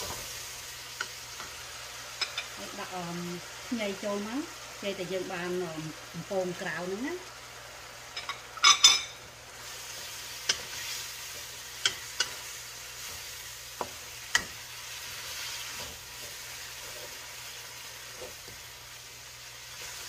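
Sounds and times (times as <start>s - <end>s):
food sizzling in oil: 0.0s - 20.0s
wooden spatula stirring in wok: 9.6s - 20.0s.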